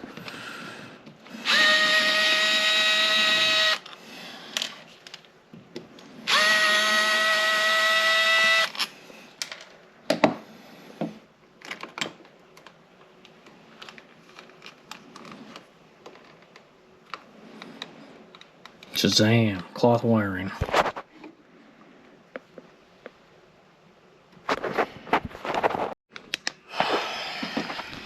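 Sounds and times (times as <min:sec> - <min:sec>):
power drill running: 0:01.3 - 0:03.8, 0:06.3 - 0:08.9.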